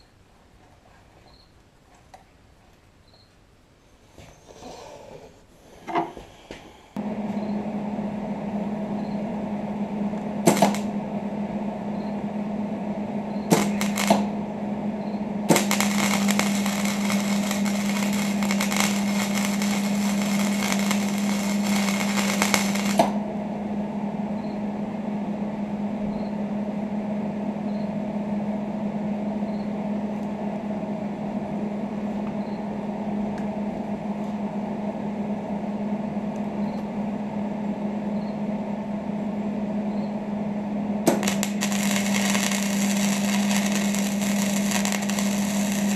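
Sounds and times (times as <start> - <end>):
power tool humming: 7.0 - 11.2, 11.8 - 23.2, 41.0 - 45.9
harsh crackling on steel: 13.5 - 14.3, 15.5 - 23.2, 41.1 - 45.9.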